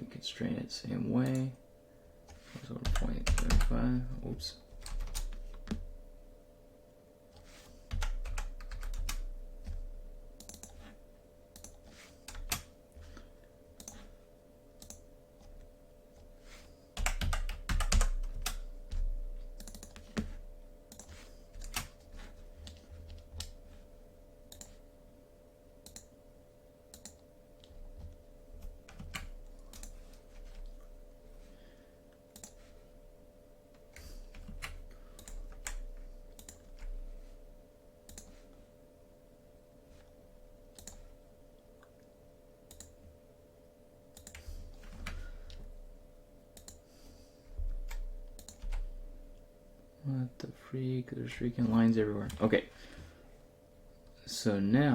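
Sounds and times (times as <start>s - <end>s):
faint steady hum: 0.0s - 54.9s
computer keyboard typing: 2.3s - 3.8s, 4.8s - 5.8s, 7.9s - 10.9s, 11.5s - 12.7s, 14.8s - 16.3s, 16.9s - 22.0s, 26.9s - 30.9s, 32.3s - 32.6s, 34.3s - 36.9s, 40.7s - 41.1s, 42.7s - 43.0s, 44.1s - 45.6s, 46.6s - 46.8s, 47.8s - 48.9s.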